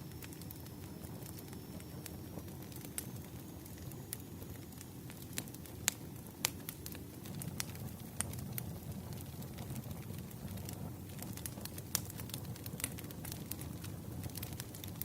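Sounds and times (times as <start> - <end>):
low rumble of flames: 0.0 - 15.0
burning logs popping and snapping: 0.2 - 15.0.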